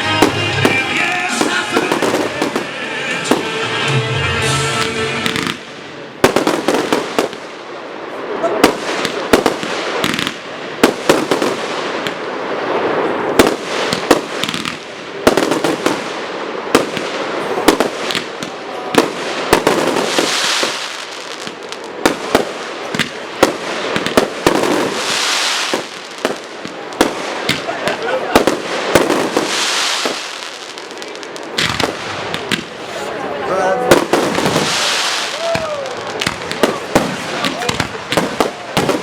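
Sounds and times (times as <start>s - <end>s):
fireworks crackling: 0.0s - 39.0s
high hissing crackle: 34.1s - 39.0s.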